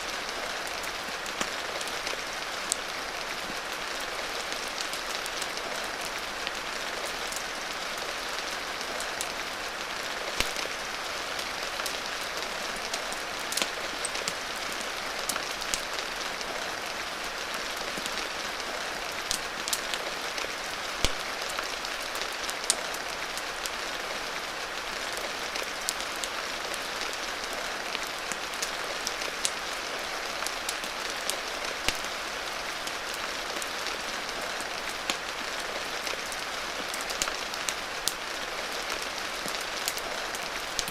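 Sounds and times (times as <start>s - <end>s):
steady rain: 0.0s - 40.9s
wood fire crackling: 8.6s - 10.8s, 13.4s - 16.6s, 17.7s - 23.8s, 25.6s - 38.5s, 39.4s - 40.9s.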